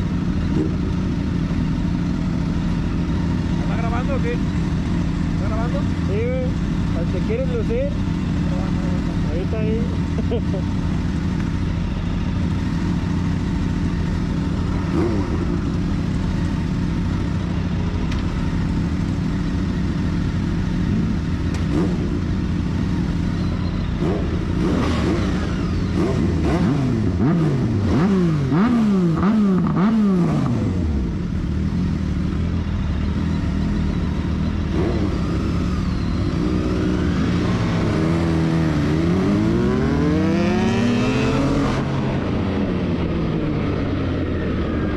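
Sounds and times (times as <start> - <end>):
motorcycle engine idling and revving: 0.0 - 44.9.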